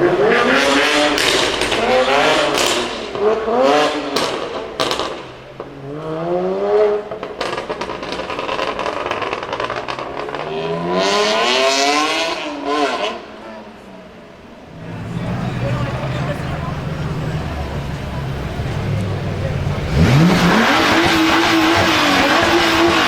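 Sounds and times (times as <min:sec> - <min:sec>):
car engine revving hard: 0:00.0 - 0:05.2, 0:05.8 - 0:13.3, 0:14.8 - 0:23.0
exhaust cracks: 0:07.0 - 0:10.6.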